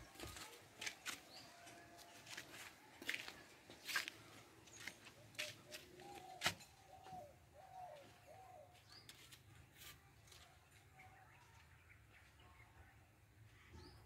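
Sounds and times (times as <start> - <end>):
faint bird calls: 4.7 - 9.4.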